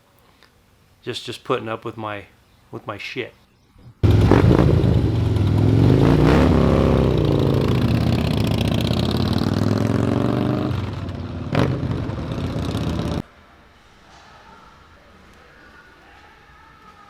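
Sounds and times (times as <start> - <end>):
motorcycle engine revving: 4.0 - 13.2.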